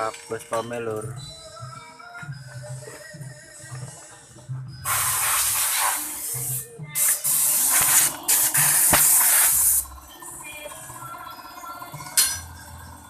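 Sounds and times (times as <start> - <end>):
faint background music: 0.0 - 13.0
pressurised spray hissing: 4.8 - 9.8.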